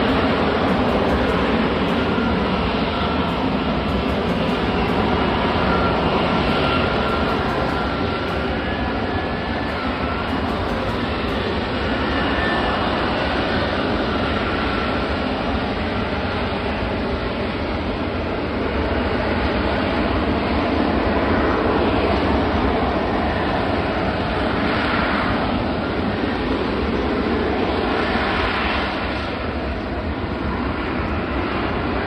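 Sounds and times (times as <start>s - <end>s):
jet engine running: 0.0s - 20.6s.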